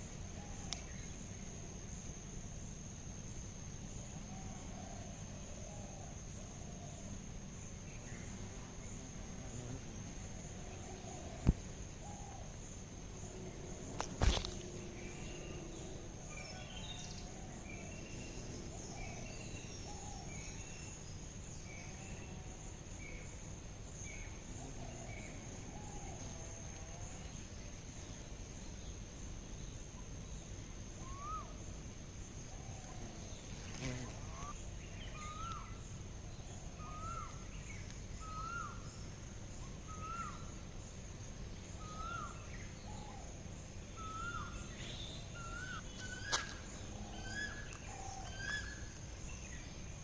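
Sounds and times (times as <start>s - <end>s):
insect trilling: 4.0s - 22.8s, 30.9s - 50.0s
bird calls: 33.8s - 35.8s, 36.4s - 38.9s, 43.9s - 49.7s.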